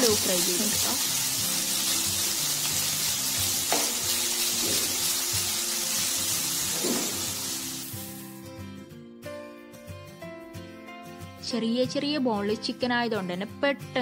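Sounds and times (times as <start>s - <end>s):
chicken sizzling in oil: 0.0s - 8.4s
soft background music: 0.0s - 14.0s.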